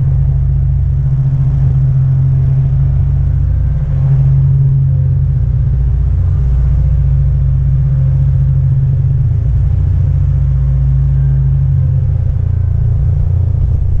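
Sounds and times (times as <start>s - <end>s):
engine droning steadily: 0.0s - 14.0s.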